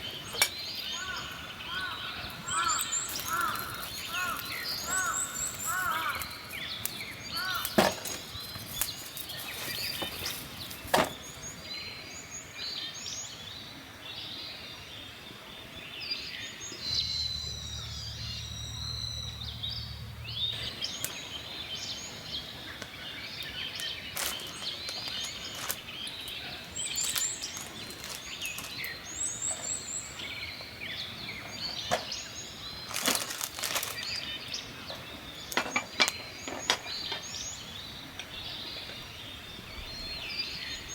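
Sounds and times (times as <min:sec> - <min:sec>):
small birds chirping: 0:00.0 - 0:14.8, 0:15.6 - 0:40.9
campfire crackling and popping: 0:00.2 - 0:11.5, 0:22.7 - 0:30.1
low hum: 0:16.8 - 0:21.6.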